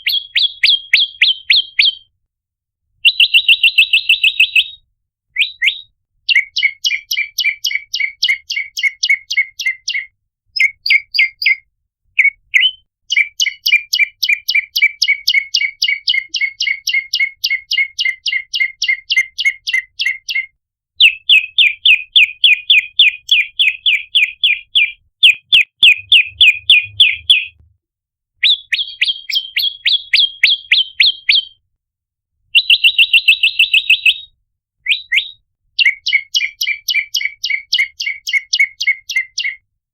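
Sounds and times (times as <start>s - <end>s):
bird calling in sharp chirps: 12.2s - 27.6s, 28.4s - 31.6s.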